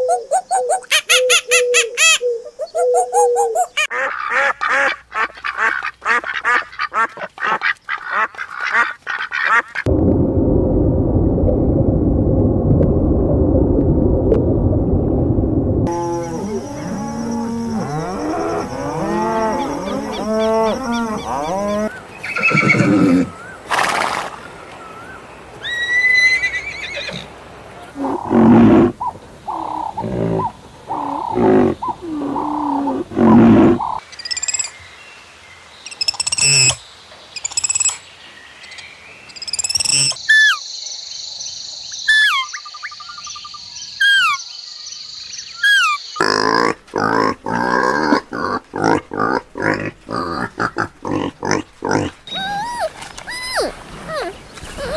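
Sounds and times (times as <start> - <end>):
bird-like chirps: 0.0 - 3.9, 37.4 - 46.2, 52.3 - 54.9
animal calls: 0.0 - 9.9, 15.9 - 24.3, 24.9 - 34.0, 45.6 - 54.9.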